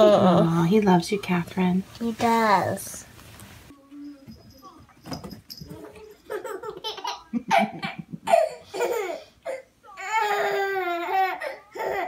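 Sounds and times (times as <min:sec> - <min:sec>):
baby laughing: 0:05.8 - 0:12.0.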